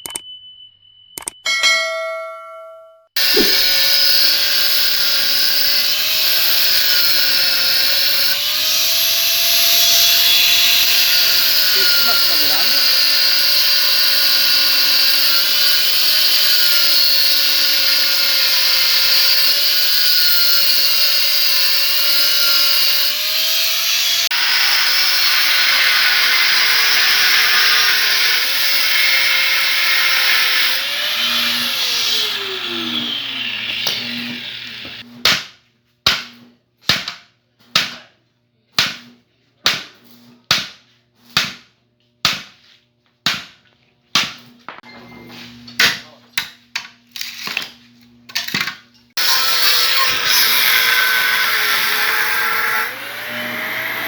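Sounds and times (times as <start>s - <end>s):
small motor running: 3.2s - 35.0s, 49.2s - 54.0s.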